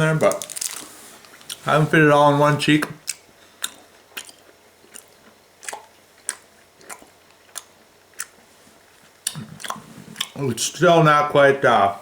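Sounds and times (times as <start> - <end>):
person chewing gum wetly: 3.0 - 10.4.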